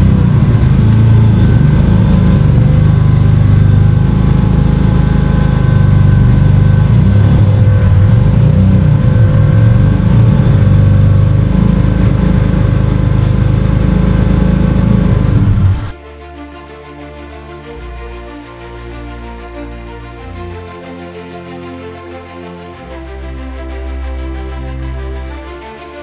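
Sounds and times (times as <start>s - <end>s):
car engine droning: 0.0s - 16.0s.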